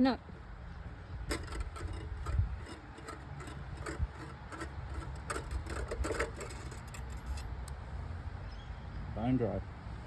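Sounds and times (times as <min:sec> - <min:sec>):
metal parts clicking and clinking: 0:01.3 - 0:07.7.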